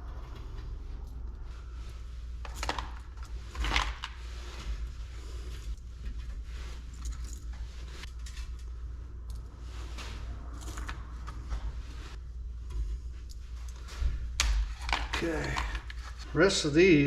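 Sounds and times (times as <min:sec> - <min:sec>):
steady low hum: 0:00.0 - 0:17.0
scrap metal parts clinking: 0:06.2 - 0:09.5.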